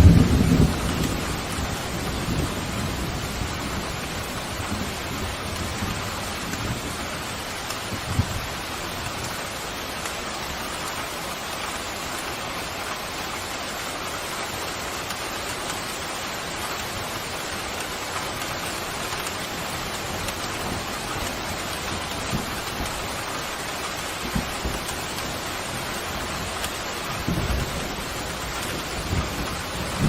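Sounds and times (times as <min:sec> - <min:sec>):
thunder rumbling: 0:00.0 - 0:10.0, 0:16.8 - 0:30.0
pouring rain hissing: 0:00.0 - 0:30.0.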